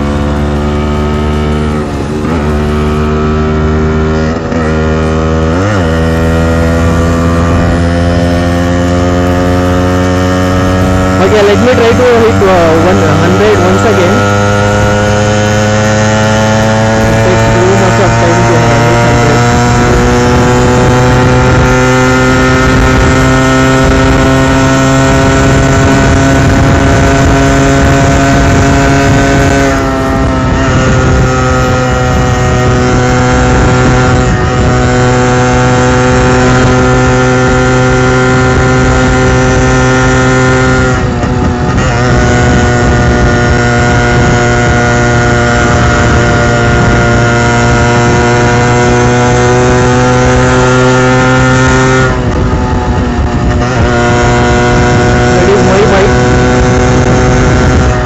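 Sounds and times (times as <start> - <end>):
two-stroke motorcycle engine revving: 0.0 - 58.0.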